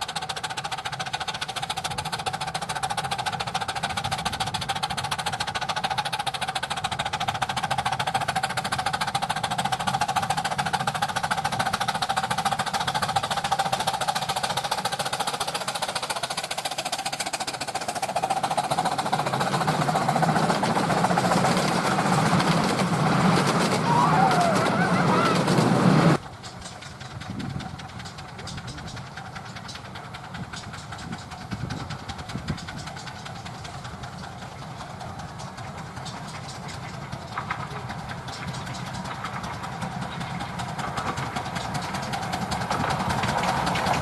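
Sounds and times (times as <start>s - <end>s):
miniature steam train clattering: 0.0s - 44.0s.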